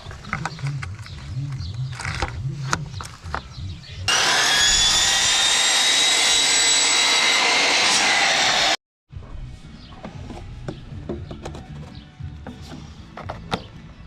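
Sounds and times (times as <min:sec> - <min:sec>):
chop saw motor whining: 0:04.1 - 0:08.8.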